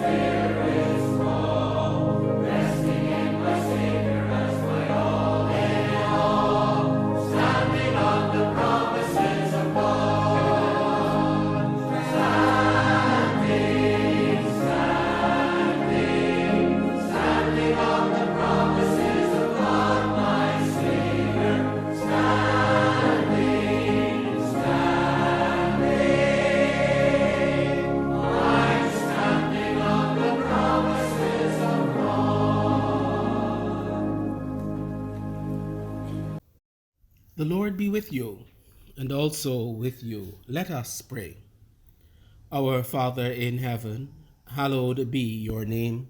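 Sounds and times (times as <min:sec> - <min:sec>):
choir singing a hymn: 0:00.0 - 0:36.4
instrumental accompaniment: 0:00.0 - 0:36.4.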